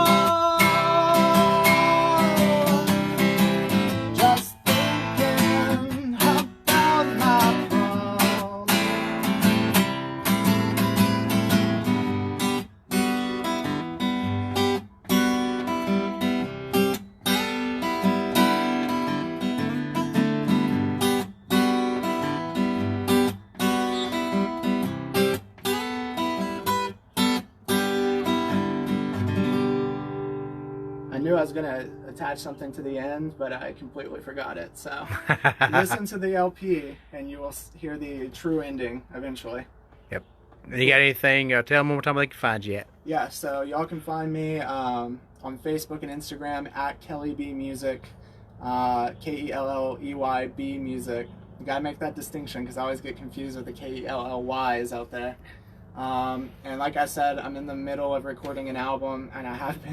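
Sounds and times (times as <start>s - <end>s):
person singing: 0.0s - 2.9s, 4.2s - 8.7s
acoustic guitar strumming chords: 0.0s - 36.0s.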